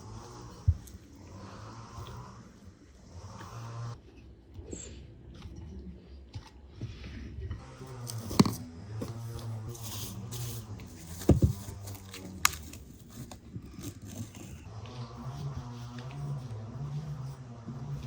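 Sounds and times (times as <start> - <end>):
dough squelching and tearing: 7.6 - 18.0.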